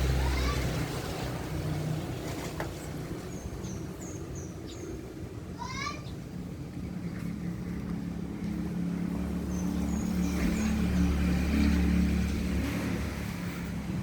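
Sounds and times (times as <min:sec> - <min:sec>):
vehicle engine passing: 0:07.2 - 0:14.0.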